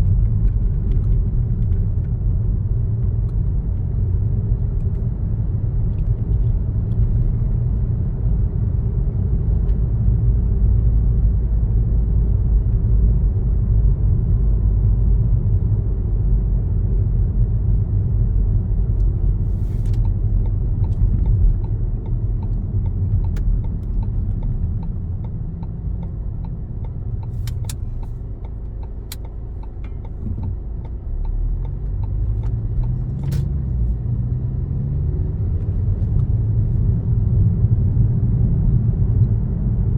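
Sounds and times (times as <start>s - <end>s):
car road and engine rumble: 0.0s - 39.9s
sharp clicks: 26.5s - 33.5s.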